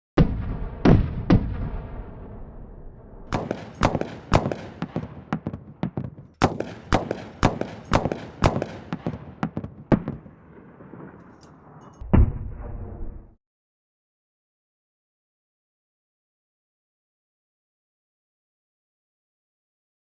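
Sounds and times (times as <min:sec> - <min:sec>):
deep boom: 0:00.2 - 0:04.0, 0:12.0 - 0:13.4
chain gun firing shots: 0:03.3 - 0:10.2.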